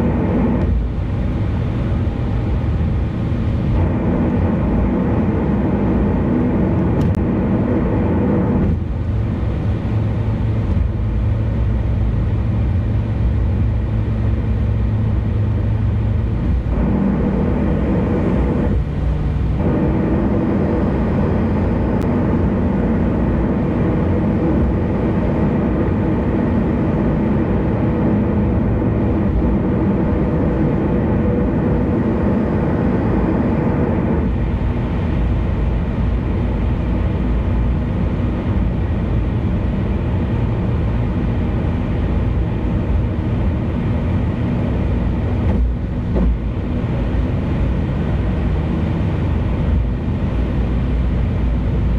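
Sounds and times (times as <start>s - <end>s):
car road and engine rumble: 0.0s - 51.9s.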